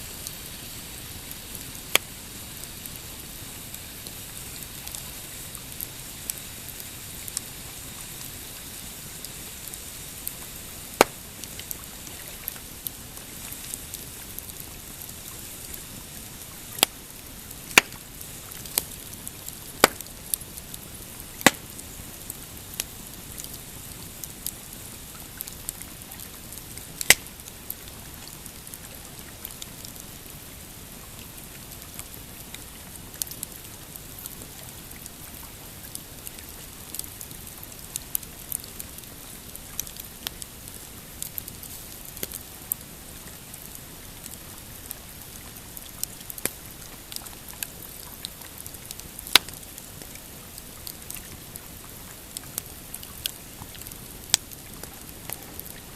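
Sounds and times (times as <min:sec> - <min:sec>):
campfire crackling: 0:00.0 - 0:55.9
loud fire pops: 0:01.9 - 0:02.2, 0:10.9 - 0:11.8, 0:17.7 - 0:21.8.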